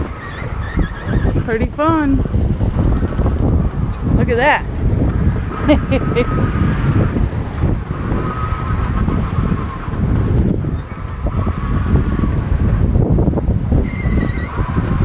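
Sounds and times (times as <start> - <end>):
water rushing: 0.0 - 15.0
wind buffeting microphone: 0.0 - 15.0.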